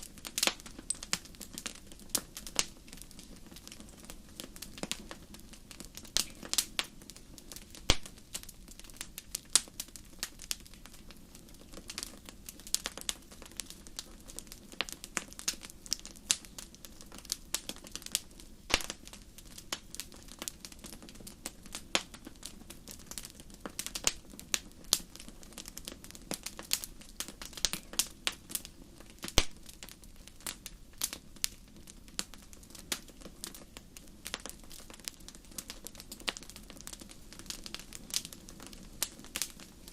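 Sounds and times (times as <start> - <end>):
low fire rumble: 0.0 - 39.9
wood fire crackling: 0.0 - 39.9.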